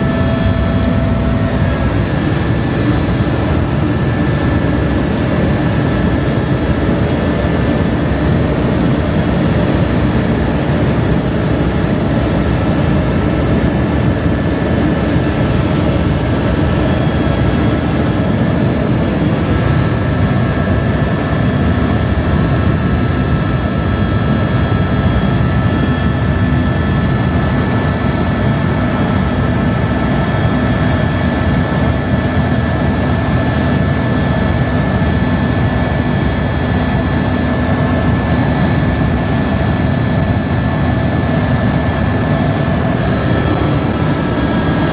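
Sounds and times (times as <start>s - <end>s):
high whine: 0.0s - 26.7s
helicopter rotor and engine: 0.0s - 44.9s.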